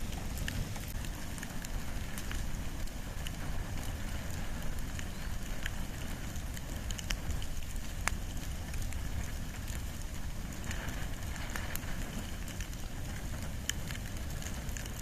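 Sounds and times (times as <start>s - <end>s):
fire crackles and pops: 0.0s - 15.0s
fire low rumble: 0.0s - 15.0s.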